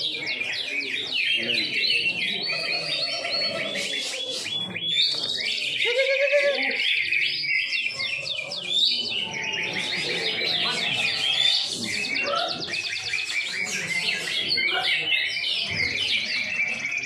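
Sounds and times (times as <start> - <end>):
birds singing chirps and trills: 0.0 - 17.0.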